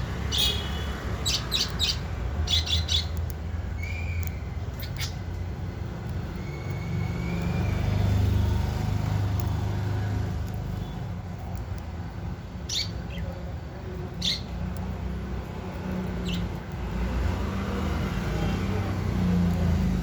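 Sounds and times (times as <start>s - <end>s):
budgerigars chirping: 0.3s - 3.2s, 3.8s - 5.3s, 12.6s - 13.4s, 14.2s - 14.6s, 16.1s - 16.5s.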